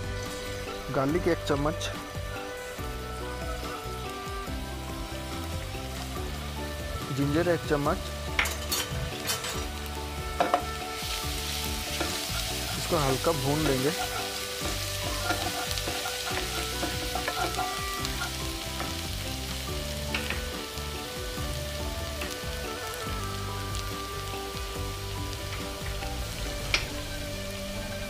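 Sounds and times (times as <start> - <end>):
garlic sizzling in hot oil: 0.0 - 28.0
wooden spatula stirring: 11.4 - 18.4.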